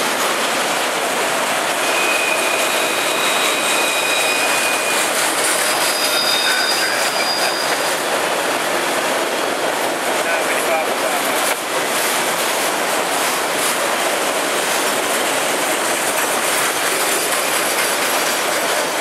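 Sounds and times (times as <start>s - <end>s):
train wheels rumbling and rattling: 0.0s - 19.0s
high-pitched wheel squeals: 1.8s - 8.0s.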